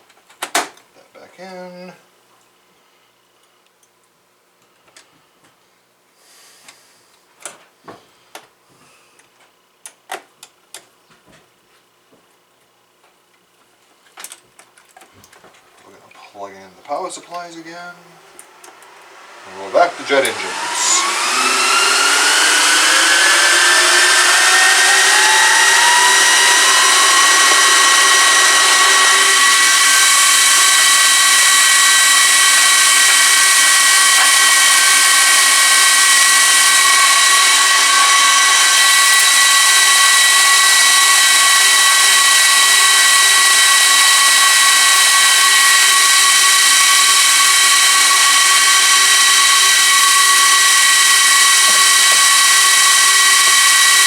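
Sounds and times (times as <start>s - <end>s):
server cooling fans whining: 13.8s - 54.0s.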